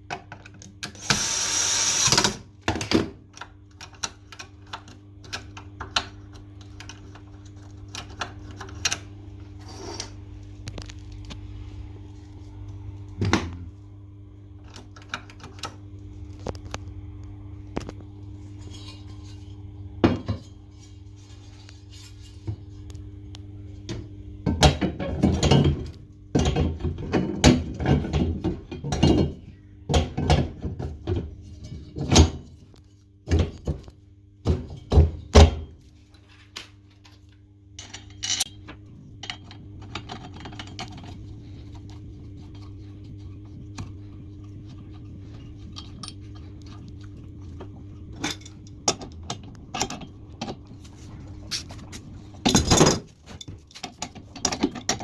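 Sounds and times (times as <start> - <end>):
steady low hum: 0.0 - 55.0
tools and parts clattering: 37.8 - 41.1, 45.8 - 46.2, 48.1 - 55.0.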